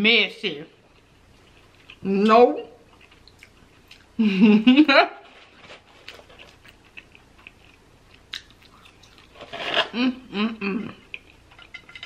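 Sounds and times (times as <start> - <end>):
chewing: 0.8 - 2.1, 2.8 - 4.2, 5.8 - 10.0, 10.8 - 12.0.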